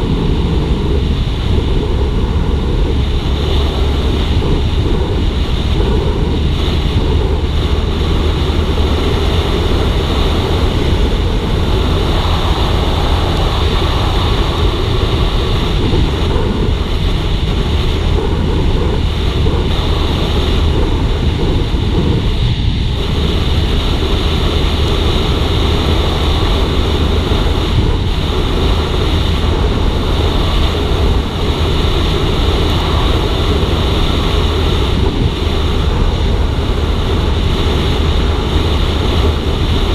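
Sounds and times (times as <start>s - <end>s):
motorcycle engine cruising: 0.0s - 39.9s
wind on microphone: 0.0s - 39.9s.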